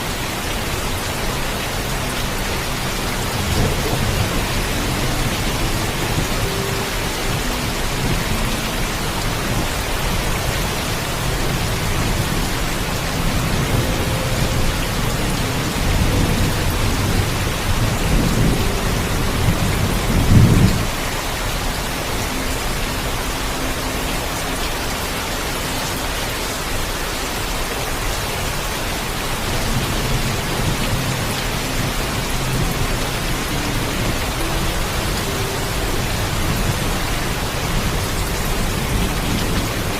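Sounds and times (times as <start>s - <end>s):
heavy rain: 0.0s - 39.9s
low thunder rumbling: 2.8s - 21.1s.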